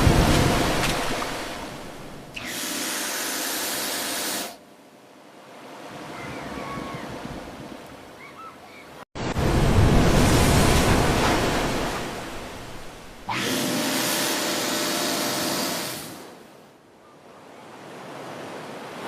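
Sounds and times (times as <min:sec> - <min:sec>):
rushing floodwater: 0:00.0 - 0:02.4, 0:05.9 - 0:16.6.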